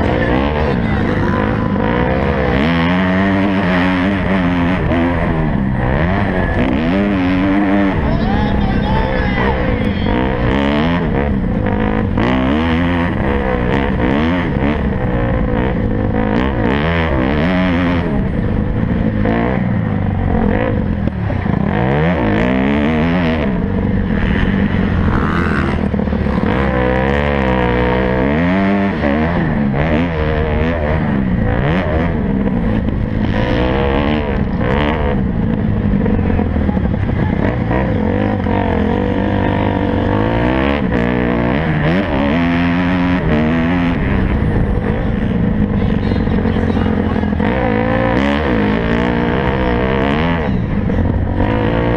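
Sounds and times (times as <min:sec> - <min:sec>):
motorcycle engines revving: 0:00.0 - 0:51.9.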